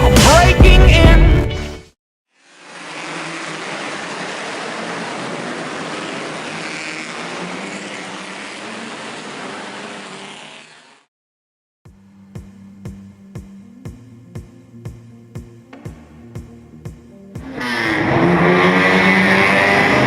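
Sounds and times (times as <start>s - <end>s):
racing car engines: 2.5s - 10.7s, 17.3s - 20.0s.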